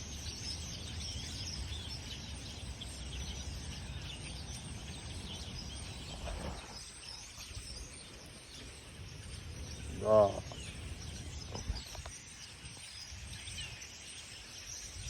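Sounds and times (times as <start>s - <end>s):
flock of birds chirping: 0.0s - 15.0s.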